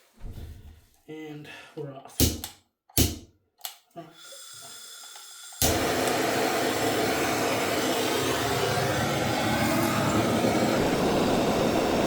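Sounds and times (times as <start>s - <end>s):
butane torch hissing: 4.1s - 12.0s.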